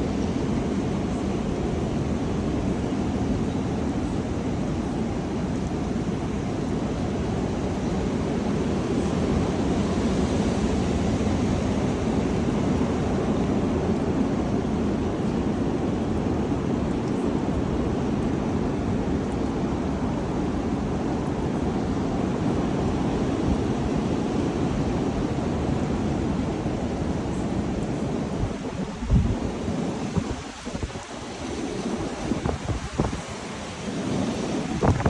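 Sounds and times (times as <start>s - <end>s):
strong wind blowing: 0.0s - 35.0s.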